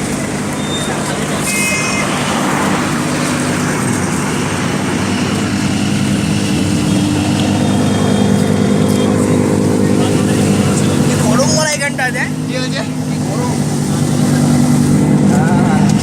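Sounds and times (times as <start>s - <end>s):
vehicle engine running: 0.0s - 16.0s
short high horn beep: 0.6s - 2.8s.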